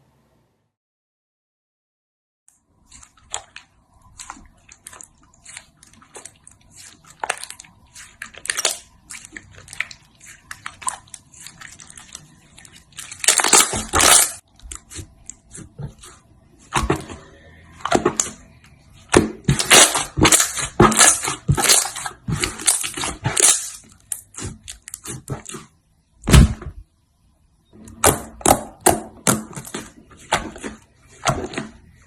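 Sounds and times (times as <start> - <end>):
slime squeezed crackling and popping: 2.8 - 17.0, 17.8 - 25.6.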